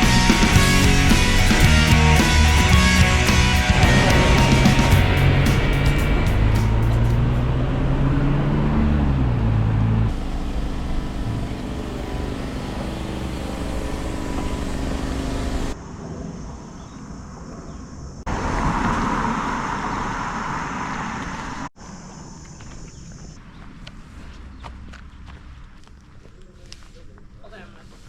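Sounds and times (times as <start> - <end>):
vehicle engine humming: 0.0 - 15.8
outdoor noise: 0.0 - 28.0.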